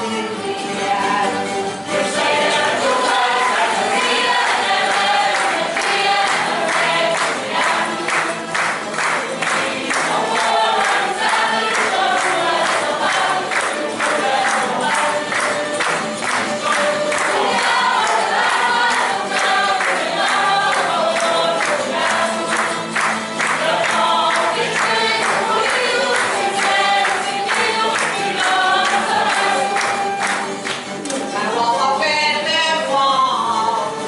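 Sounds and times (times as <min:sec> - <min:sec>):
group of voices singing: 0:00.0 - 0:34.0.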